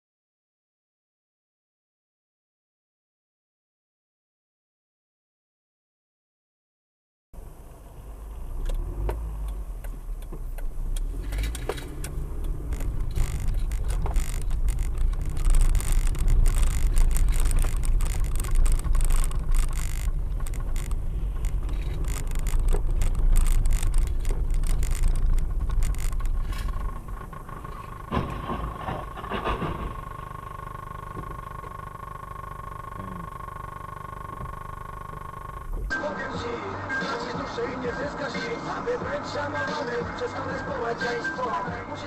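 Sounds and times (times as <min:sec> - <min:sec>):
road and engine rumble: 0:07.4 - 0:42.0
small rattles and knocks: 0:09.8 - 0:31.8.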